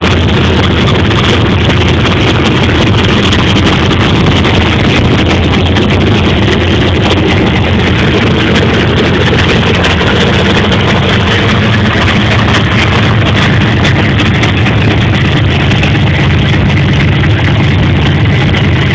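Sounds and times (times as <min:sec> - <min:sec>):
loud car engine idling: 0:00.0 - 0:18.9.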